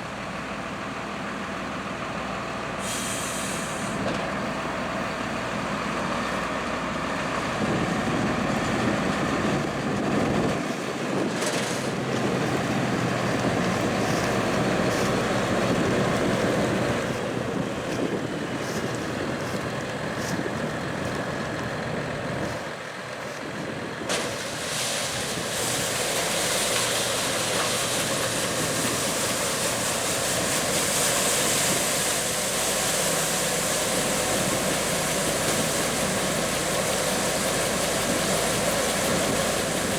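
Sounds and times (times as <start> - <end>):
diesel machinery running: 0.0 - 39.9
bright hiss: 24.2 - 39.9.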